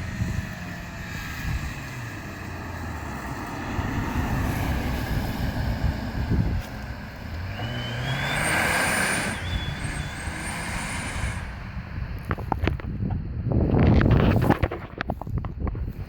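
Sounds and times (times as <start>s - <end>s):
car engine accelerating: 0.0s - 13.4s
turbocharger whistle: 7.5s - 11.5s.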